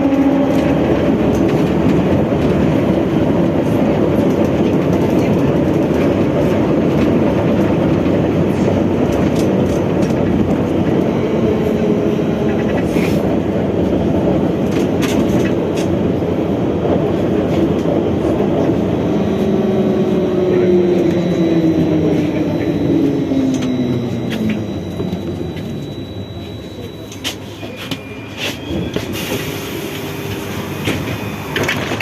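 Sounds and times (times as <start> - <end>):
trolleybus rumble: 0.0 - 32.0
faint steady tones: 19.0 - 29.0.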